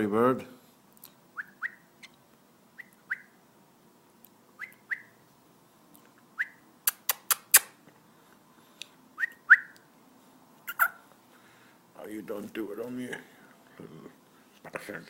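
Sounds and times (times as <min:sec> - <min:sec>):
canary call notes: 0:01.4 - 0:02.2, 0:02.8 - 0:03.4, 0:04.6 - 0:05.2, 0:10.6 - 0:11.0
sharp clicks: 0:06.9 - 0:07.8.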